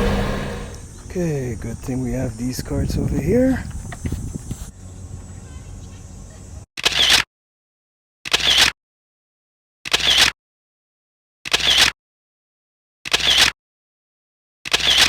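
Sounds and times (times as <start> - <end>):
camera shutter clicks: 8.3 - 8.7, 11.5 - 11.9, 13.1 - 13.5, 14.7 - 15.0.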